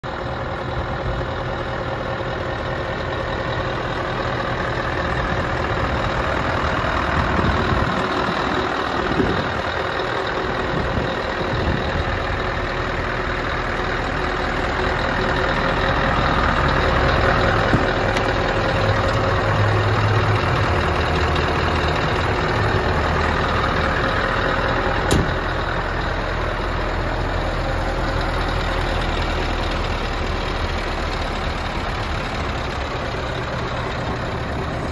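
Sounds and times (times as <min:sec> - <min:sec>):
diesel engine idling: 0:00.0 - 0:34.9
sharp click: 0:25.1 - 0:25.3.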